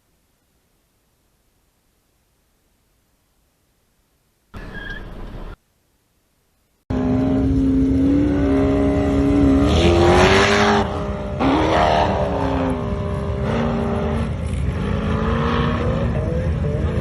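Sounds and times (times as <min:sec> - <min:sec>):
road noise: 0:04.5 - 0:17.0
car engine accelerating: 0:06.9 - 0:17.0.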